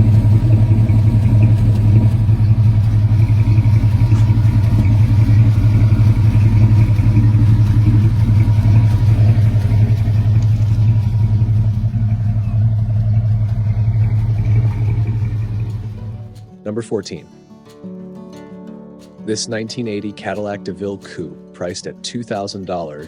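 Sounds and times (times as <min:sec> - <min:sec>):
pickup truck engine running: 0:00.0 - 0:16.5.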